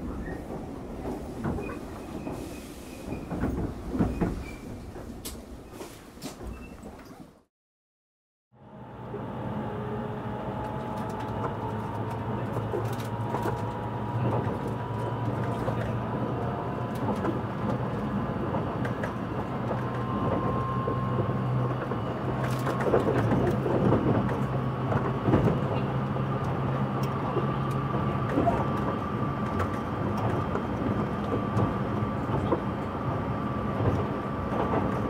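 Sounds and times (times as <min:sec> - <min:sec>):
train wheels rumbling on rail: 0:00.0 - 0:07.2, 0:09.1 - 0:35.0
train motor hum and whine: 0:08.6 - 0:35.0.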